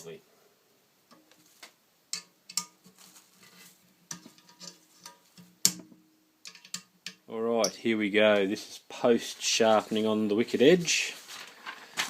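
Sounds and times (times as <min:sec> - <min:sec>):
objects being handled and set down: 0:01.1 - 0:07.2, 0:11.2 - 0:12.0.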